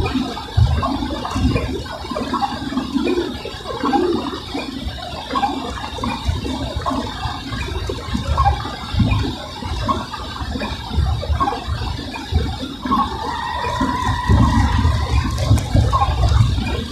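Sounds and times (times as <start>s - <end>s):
low rumbles: 13.2s - 16.9s
rain on a car: 13.7s - 16.9s.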